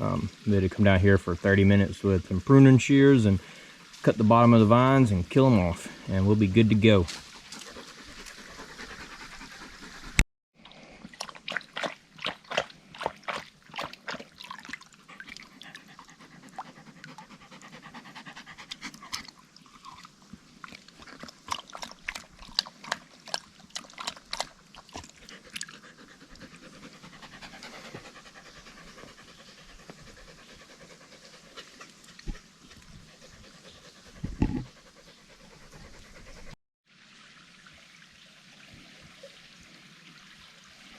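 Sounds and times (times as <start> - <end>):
faint water trickling: 0.0 - 40.9
dog panting: 7.1 - 10.2, 15.0 - 19.3, 21.0 - 36.6.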